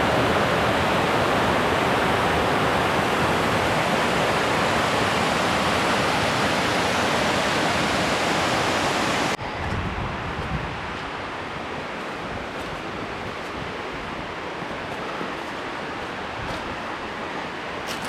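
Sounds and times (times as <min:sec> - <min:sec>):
waterfall rushing: 0:00.0 - 0:09.4.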